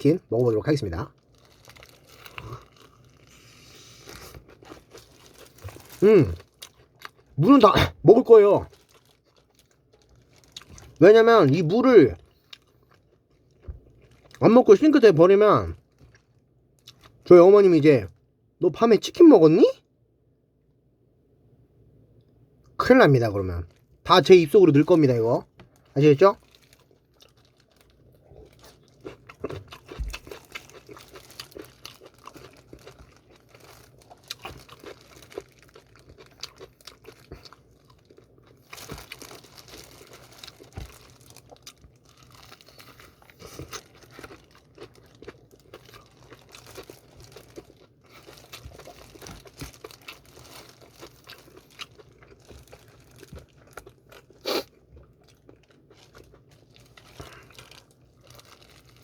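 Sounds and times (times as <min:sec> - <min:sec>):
chewing crispy fried chicken: 0:00.1 - 0:17.6, 0:23.6 - 0:59.0
crinkling: 0:01.1 - 0:03.4, 0:04.0 - 0:07.2, 0:08.6 - 0:14.4, 0:25.6 - 0:59.0.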